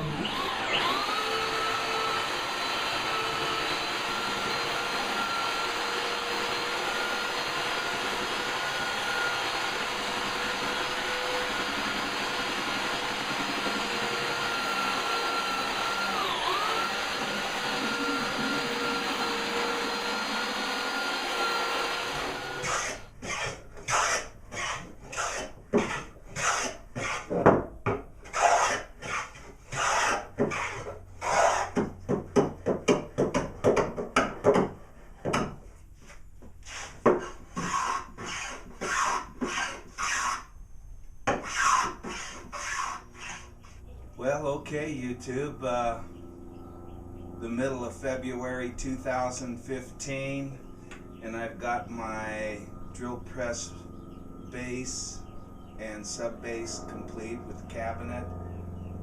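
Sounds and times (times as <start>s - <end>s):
power tool motor hissing: 0.0s - 23.1s
rhythmic sanding strokes on wood: 17.6s - 27.3s, 28.3s - 31.8s, 41.4s - 43.5s.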